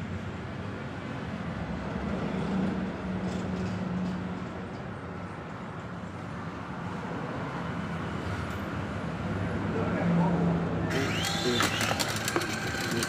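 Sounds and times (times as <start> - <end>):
toy helicopter motor humming: 10.9 - 13.0.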